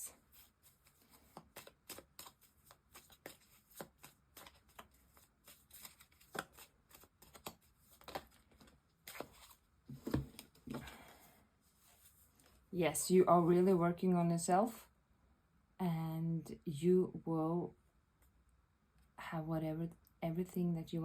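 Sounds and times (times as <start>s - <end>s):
cards being shuffled: 0.3s - 10.9s.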